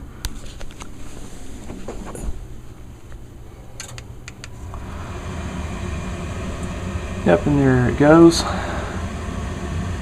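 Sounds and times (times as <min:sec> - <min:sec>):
gas furnace humming: 0:00.0 - 0:10.0
sharp clicks: 0:03.8 - 0:04.6.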